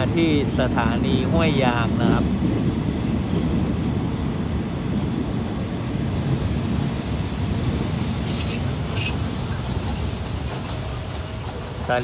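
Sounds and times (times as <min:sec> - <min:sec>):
train wheels rumbling: 0:00.0 - 0:12.0
high wheel squeal: 0:07.0 - 0:12.0.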